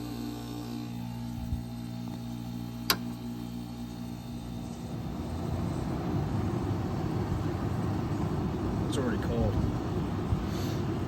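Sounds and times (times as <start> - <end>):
air conditioner humming: 0.0 - 11.0
rush of air: 10.2 - 11.0.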